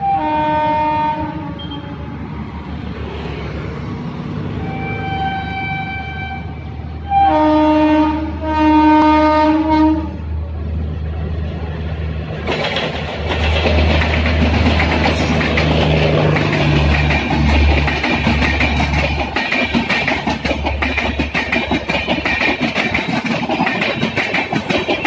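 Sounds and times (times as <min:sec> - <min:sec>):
train horn blasts: 0:00.0 - 0:02.2, 0:04.6 - 0:10.4
train wheels clattering over rail joints: 0:12.3 - 0:25.0.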